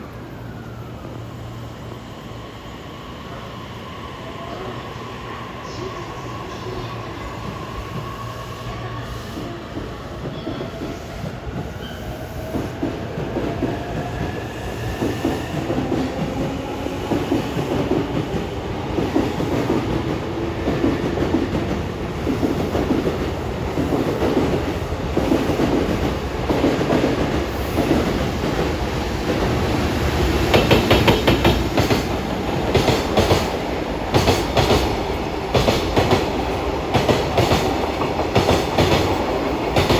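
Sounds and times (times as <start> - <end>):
electric locomotive whine: 0.0 - 39.9
train wheels clacking on rail joints: 30.4 - 39.9.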